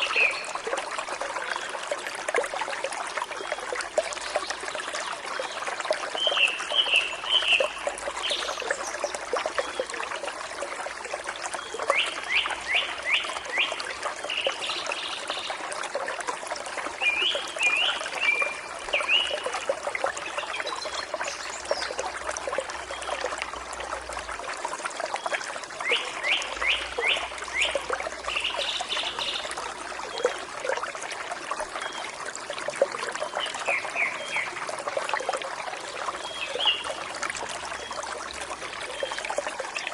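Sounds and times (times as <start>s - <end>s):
forest stream trickling: 0.0s - 39.9s
small birds singing: 25.8s - 29.6s, 33.2s - 34.6s, 36.1s - 37.0s.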